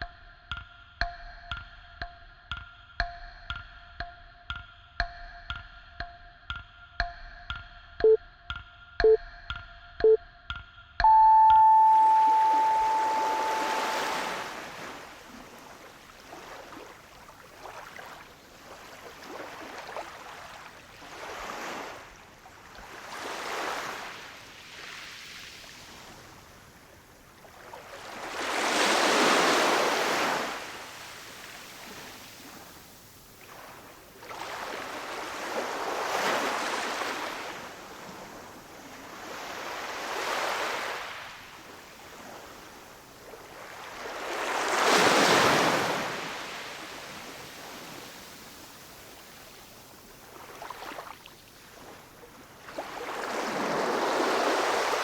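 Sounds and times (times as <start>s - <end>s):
ocean waves washing onto shore: 11.1s - 55.0s.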